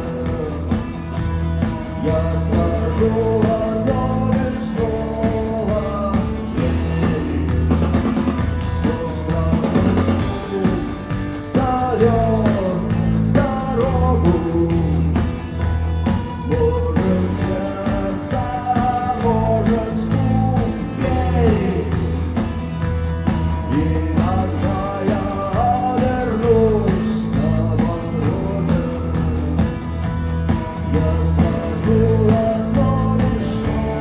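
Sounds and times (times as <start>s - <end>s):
rock music: 0.0s - 34.0s.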